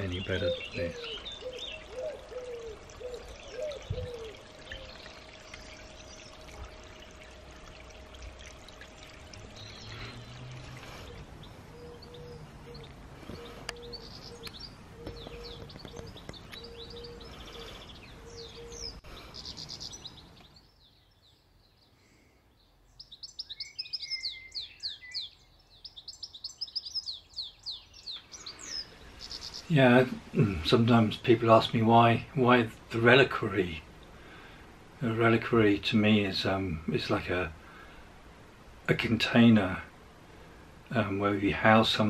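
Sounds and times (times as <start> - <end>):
bird singing rapid high chirps: 0.0 - 8.0, 9.3 - 21.9, 22.9 - 30.0
birds chirping: 0.0 - 38.0
steady outdoor hiss: 0.0 - 42.0.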